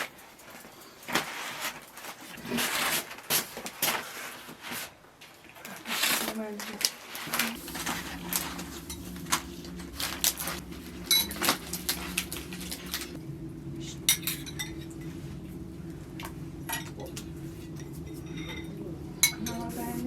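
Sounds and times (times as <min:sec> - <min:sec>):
steady low hum: 0:07.2 - 0:20.0
spoons clinking against bowls: 0:17.8 - 0:19.7.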